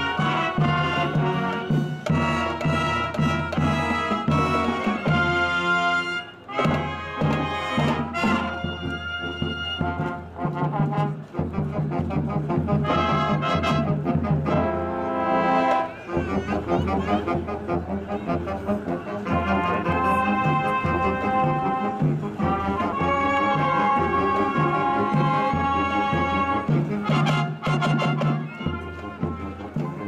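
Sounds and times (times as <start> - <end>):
trumpets and trombones: 0.0 - 30.0.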